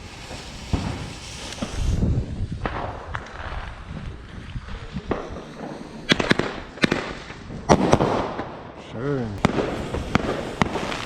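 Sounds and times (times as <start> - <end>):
fireworks bangs and cracks: 0.0 - 11.0.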